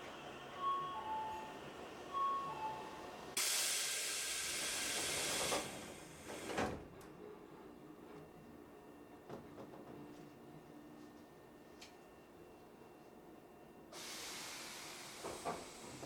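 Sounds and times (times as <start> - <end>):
compressed air hiss: 3.4 - 6.2, 14.0 - 16.0.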